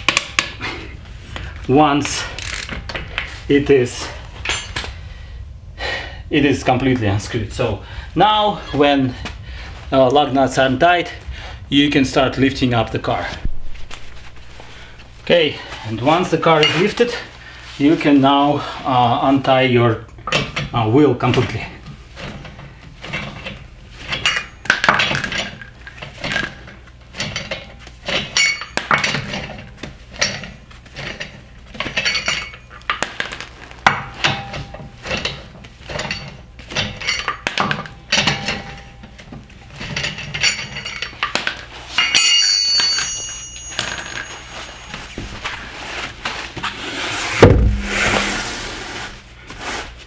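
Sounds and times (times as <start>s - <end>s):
heavy low thump: 13.4s - 15.4s, 47.4s - 48.4s
metal lug nuts clinking: 14.8s - 17.2s, 22.2s - 45.8s.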